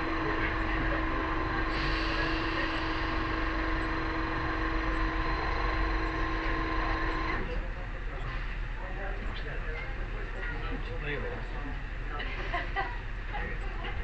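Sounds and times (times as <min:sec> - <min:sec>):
vehicle running with whine: 0:00.0 - 0:08.2.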